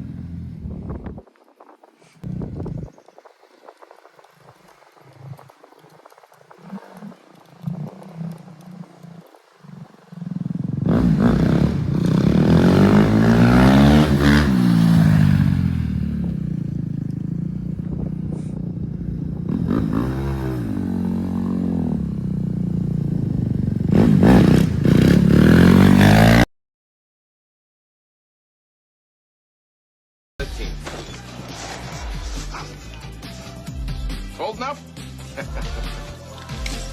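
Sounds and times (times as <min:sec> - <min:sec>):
dirt bike engine revving: 0:00.0 - 0:01.0, 0:06.6 - 0:26.5.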